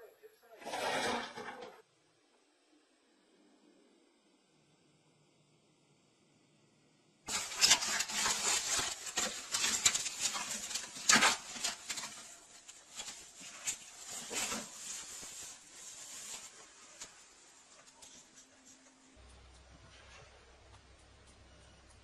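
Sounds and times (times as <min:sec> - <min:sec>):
scratching and rubbing: 0:00.6 - 0:01.8, 0:07.3 - 0:19.2.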